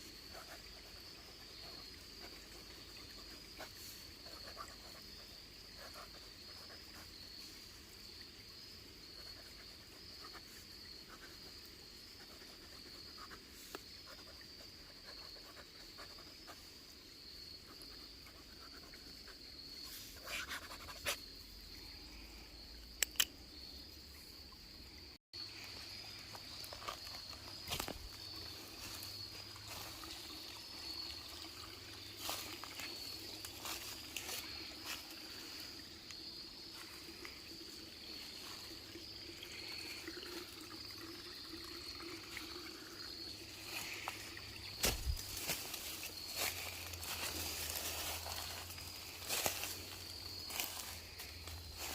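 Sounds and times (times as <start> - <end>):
insects buzzing: 0.0 - 51.9
sharp clicks and taps: 23.0 - 23.3.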